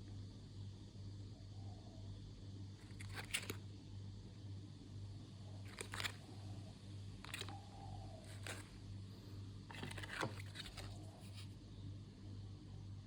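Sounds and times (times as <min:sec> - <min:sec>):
low steady hum: 0:00.0 - 0:13.0
packaging scrapes and clicks: 0:02.8 - 0:03.6, 0:05.7 - 0:06.3, 0:07.2 - 0:07.6, 0:08.2 - 0:08.8, 0:09.7 - 0:11.5.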